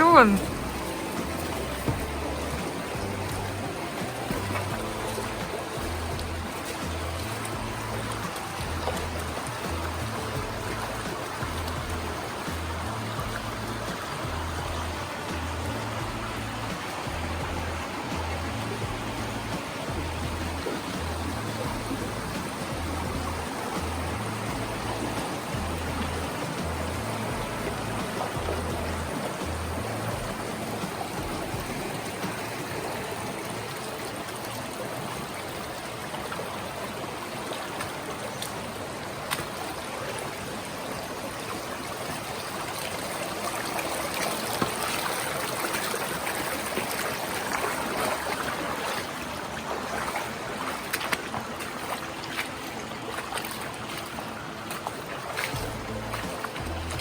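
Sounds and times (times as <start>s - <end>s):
river water rushing over rocks: 0.0s - 57.0s.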